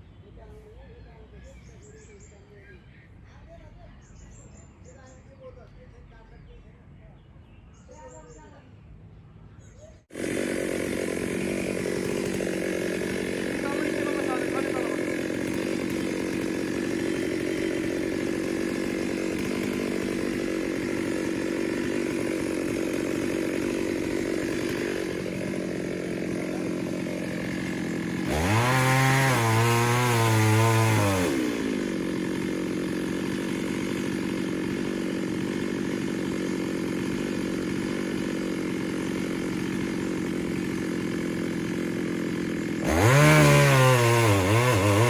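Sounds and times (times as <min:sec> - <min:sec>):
chainsaw idling and revving: 0:10.0 - 0:45.0.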